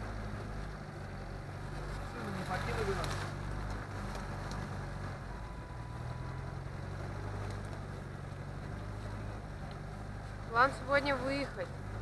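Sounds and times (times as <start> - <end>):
engine running at low revs: 0.0 - 12.0
road noise: 0.0 - 12.0.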